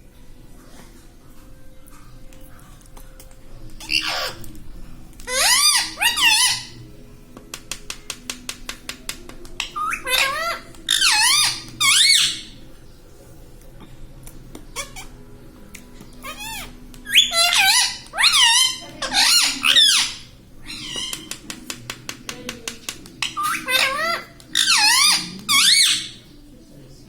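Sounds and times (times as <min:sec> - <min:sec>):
parrot squeaky calls: 0:03.8 - 0:04.5, 0:05.3 - 0:06.8, 0:09.6 - 0:12.6, 0:16.2 - 0:21.3, 0:23.2 - 0:26.2.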